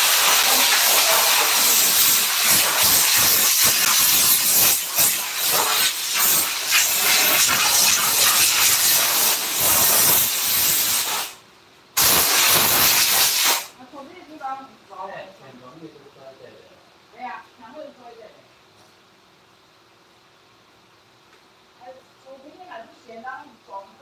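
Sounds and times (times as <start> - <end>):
spray gun hissing: 0.0 - 11.4, 12.0 - 13.7.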